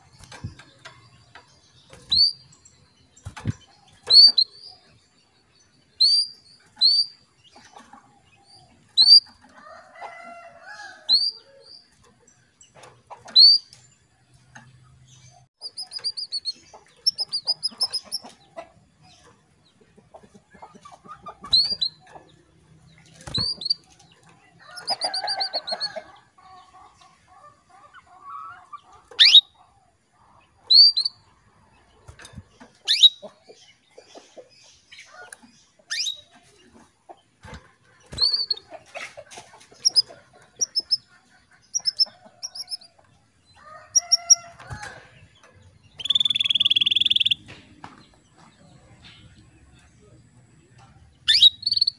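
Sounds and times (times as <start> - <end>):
canary chirps and trills: 0.0 - 51.9
upward-sweeping bird calls: 28.3 - 29.6, 46.0 - 47.5.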